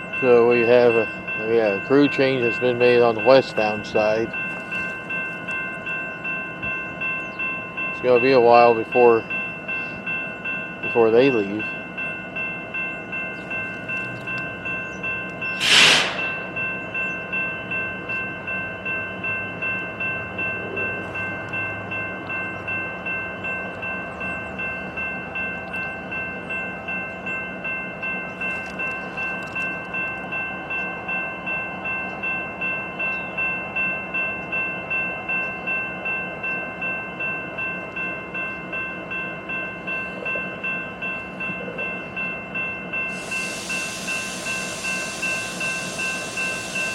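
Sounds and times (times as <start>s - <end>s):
pulsing ringing tone: 0.0s - 46.9s
sharp burst of hiss: 15.6s - 16.5s, 43.1s - 46.9s.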